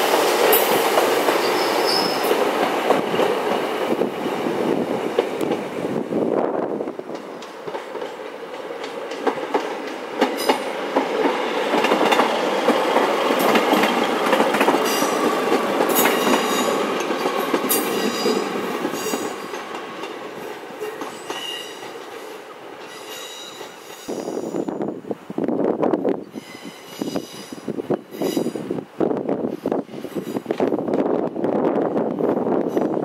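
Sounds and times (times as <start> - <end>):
diesel train engines rumbling: 0.0 - 33.0
high-pitched wheel squeal: 1.4 - 2.3, 26.3 - 27.6
wheels clicking over rail joints: 7.0 - 24.2.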